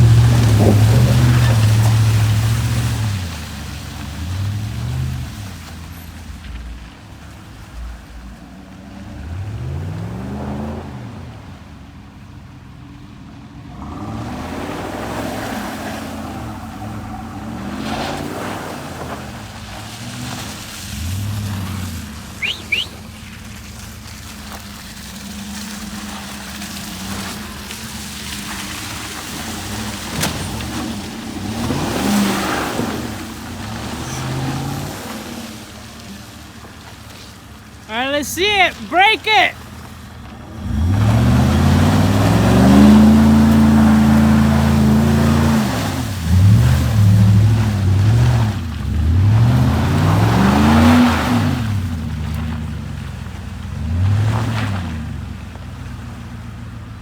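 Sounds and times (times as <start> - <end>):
truck engines passing: 0.0 - 57.0
short sharp squeaks: 22.4 - 23.3.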